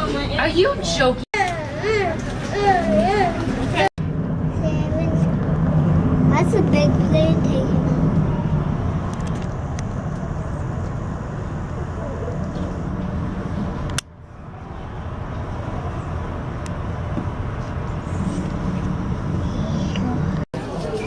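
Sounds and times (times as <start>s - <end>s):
jet engine rumble: 3.9s - 20.5s.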